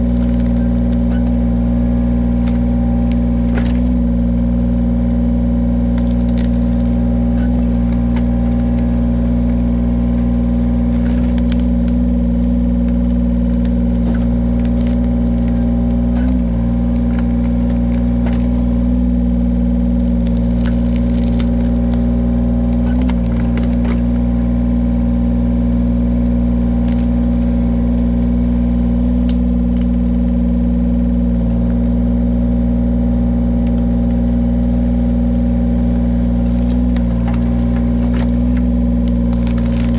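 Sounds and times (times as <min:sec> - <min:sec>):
firewood splitter engine running: 0:00.0 - 0:39.9.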